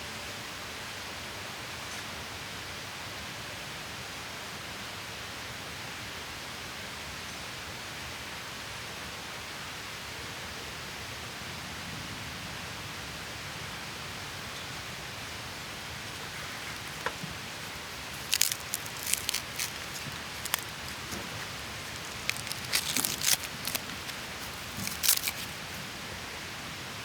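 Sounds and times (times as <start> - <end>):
sharp crackles: 16.1 - 25.9.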